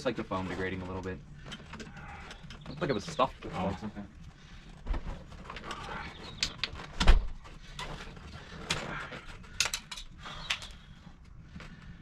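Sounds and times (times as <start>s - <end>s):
clicks and knocks of hand work: 4.8s - 11.8s.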